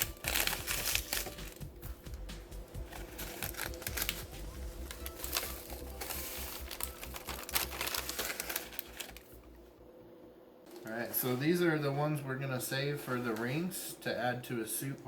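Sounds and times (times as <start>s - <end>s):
plastic bag crinkling: 0.0s - 1.7s, 2.8s - 9.5s.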